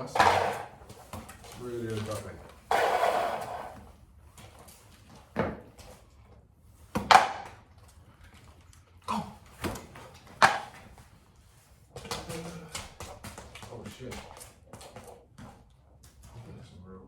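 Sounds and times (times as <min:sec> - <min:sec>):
sharp thuds: 0:00.0 - 0:01.2, 0:02.7 - 0:03.8.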